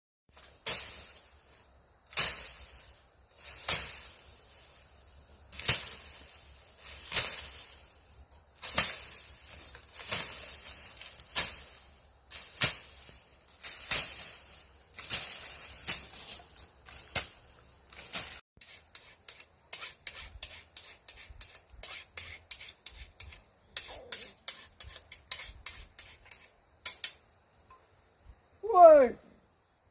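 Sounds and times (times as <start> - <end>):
machete slashing through grass: 0.3 - 1.3, 2.1 - 4.9, 5.5 - 8.0, 8.6 - 20.6.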